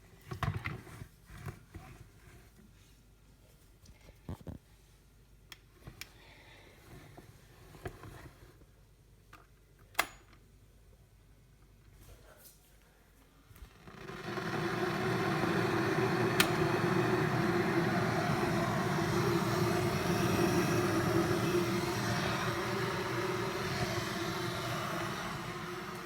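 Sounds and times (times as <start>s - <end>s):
kettle rushing water noise: 13.8s - 26.0s.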